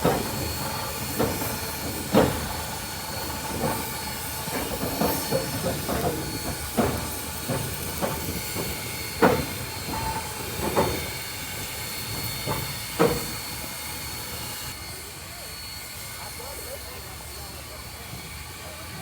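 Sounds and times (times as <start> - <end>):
steam locomotive hissing: 0.0 - 19.0.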